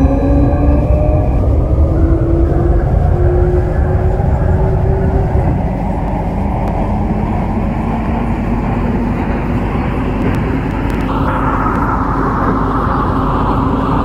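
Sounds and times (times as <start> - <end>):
faint train whine: 0.0 - 14.0
train wheels rumbling: 0.0 - 14.0.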